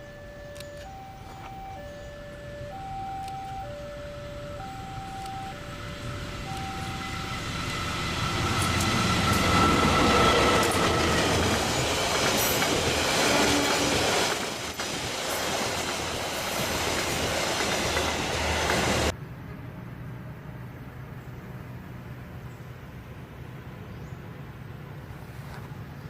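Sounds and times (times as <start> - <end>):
steady high tone: 0.0 - 19.1
train wheels clattering on rails: 6.1 - 19.1.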